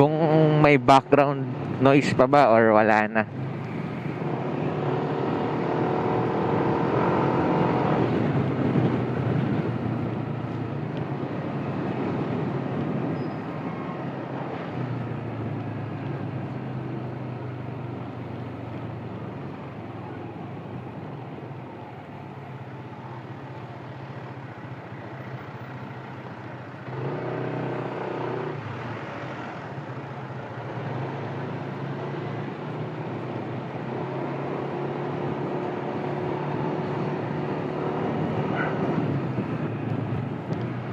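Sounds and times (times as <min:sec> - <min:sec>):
scooter engine and road hum: 0:00.0 - 0:40.9.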